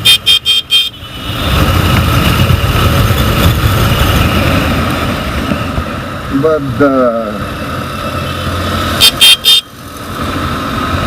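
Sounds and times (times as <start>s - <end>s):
motorcycle engine: 0.0s - 6.4s
wind buffeting microphone: 1.2s - 6.0s.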